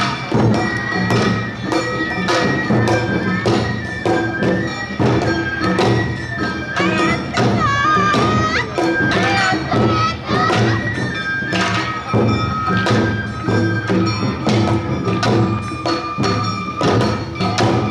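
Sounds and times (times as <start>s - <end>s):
bamboo flute melody: 0.0s - 17.9s
taiko drum beat: 0.0s - 17.9s.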